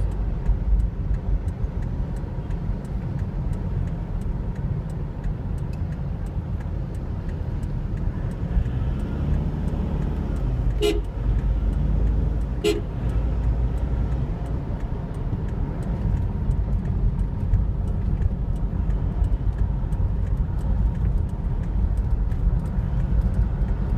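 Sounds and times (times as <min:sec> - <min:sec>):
traffic rumble: 0:00.0 - 0:23.9
car horn toot: 0:10.8 - 0:11.2, 0:12.6 - 0:12.9.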